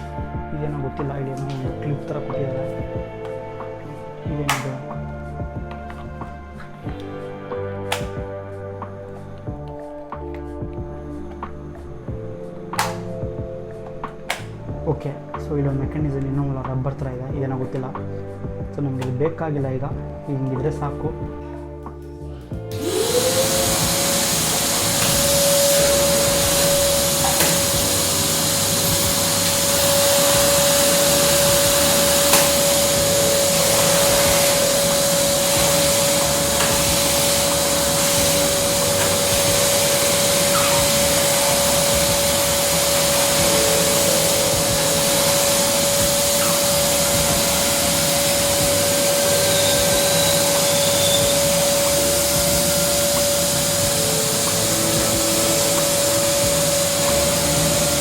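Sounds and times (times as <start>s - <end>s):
vacuum cleaner running: 22.7s - 58.0s.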